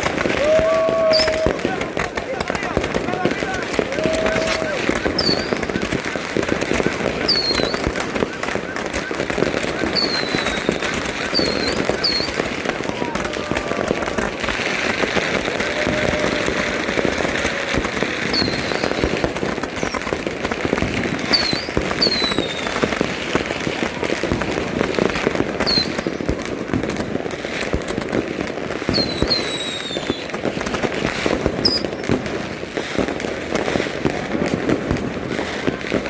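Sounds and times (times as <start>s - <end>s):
fireworks whistles falling: 0.0s - 27.0s, 27.7s - 33.3s
fireworks bangs and pops: 0.0s - 36.0s.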